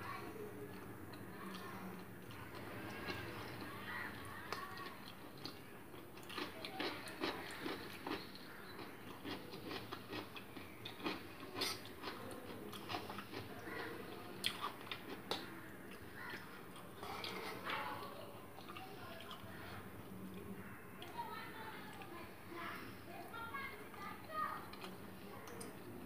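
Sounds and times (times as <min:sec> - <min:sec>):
person chewing noodles: 0:00.7 - 0:17.8, 0:24.6 - 0:25.7.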